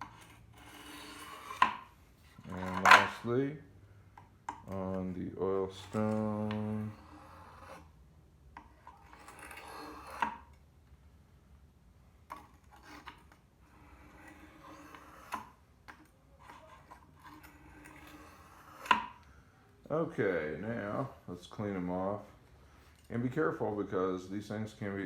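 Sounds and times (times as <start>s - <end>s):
blade scraping on oil stone: 0.0s - 3.2s, 4.7s - 8.0s, 8.6s - 10.6s, 12.3s - 19.3s.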